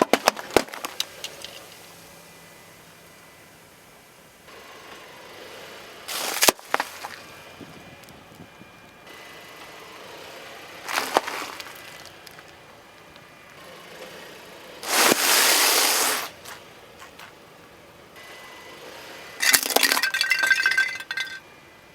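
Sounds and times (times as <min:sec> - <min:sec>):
burst with rush of hiss: 0:14.8 - 0:16.4
crunching with glassy clinks: 0:19.4 - 0:21.5.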